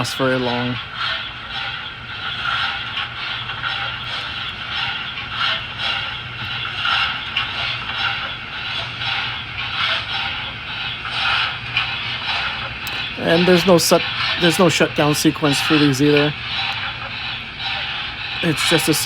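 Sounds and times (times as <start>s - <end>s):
model train motor hum: 0.0s - 19.0s
wheels rolling on rails: 0.0s - 19.0s.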